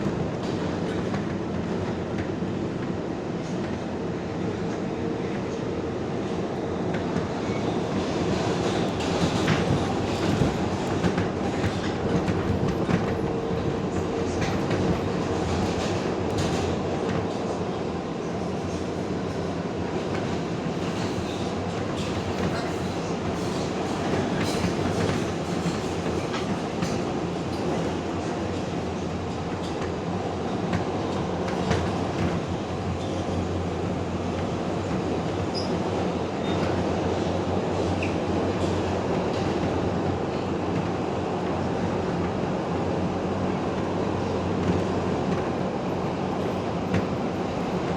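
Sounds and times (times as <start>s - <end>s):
wheels rumbling on rails: 18.4s - 47.9s.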